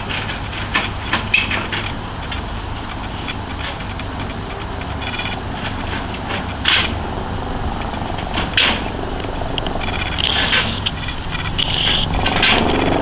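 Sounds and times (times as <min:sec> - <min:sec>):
helicopters flying: 0:03.0 - 0:13.0.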